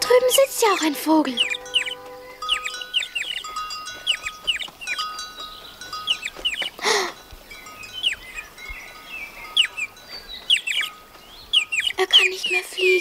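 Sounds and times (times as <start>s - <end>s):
soft chime-like tones: 0.0s - 11.2s
cartoon bird chirping: 0.4s - 3.5s, 10.5s - 10.9s, 11.6s - 12.5s.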